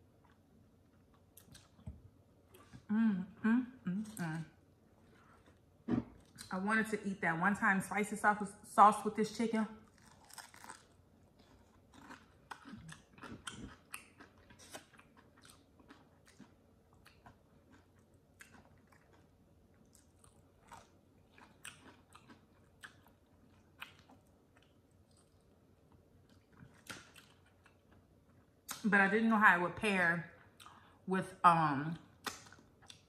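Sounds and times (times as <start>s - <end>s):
person chewing crispy chicken: 0.2s - 1.8s, 9.8s - 28.8s, 32.2s - 33.0s.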